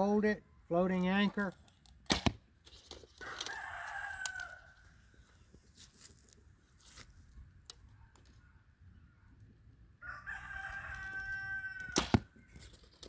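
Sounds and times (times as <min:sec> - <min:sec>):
rooster crowing: 0:03.2 - 0:04.8, 0:10.0 - 0:12.1.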